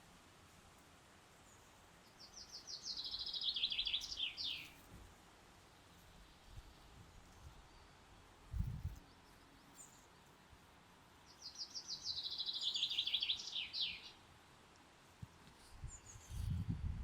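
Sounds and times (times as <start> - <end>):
songbird trill: 1.4 - 4.9, 8.8 - 14.3.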